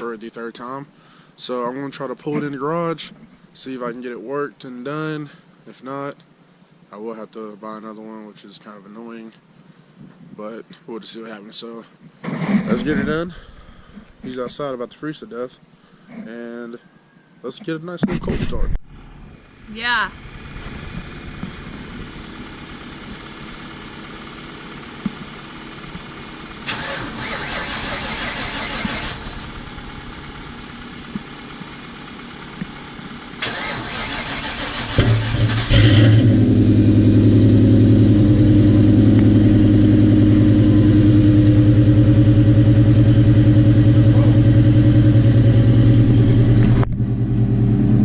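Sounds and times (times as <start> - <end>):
car engine fast idle: 19.0 - 47.8
car starter cranking: 26.6 - 30.5, 33.4 - 36.4.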